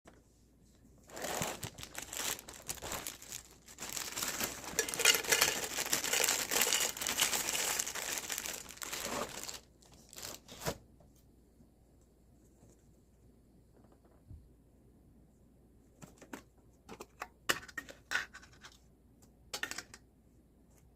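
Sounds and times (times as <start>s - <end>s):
plastic packaging crinkling: 1.1s - 10.8s.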